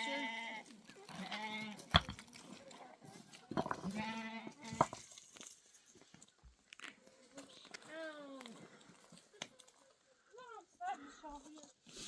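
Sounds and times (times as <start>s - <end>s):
sheep or goat bleat: 0.0s - 1.9s, 3.9s - 4.8s.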